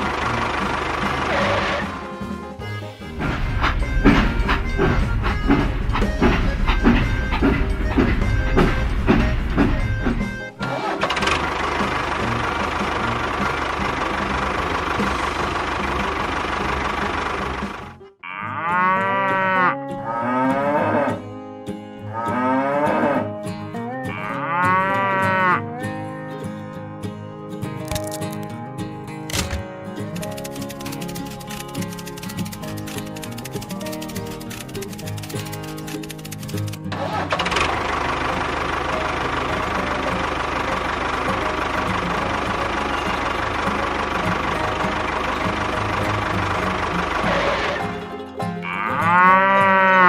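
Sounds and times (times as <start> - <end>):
engine running: 0.0 - 18.2, 27.8 - 50.0
background music: 0.0 - 50.0
cattle mooing: 18.2 - 21.2, 22.0 - 25.7, 48.6 - 50.0.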